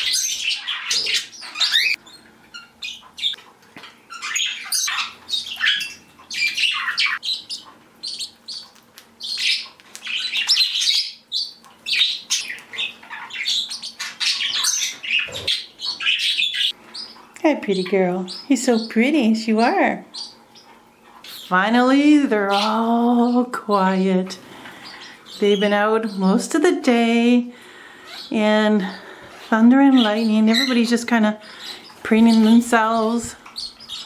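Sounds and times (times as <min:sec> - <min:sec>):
bird squawks: 0:00.0 - 0:03.4, 0:04.1 - 0:17.2
pet birds chirping and chattering: 0:00.0 - 0:34.0.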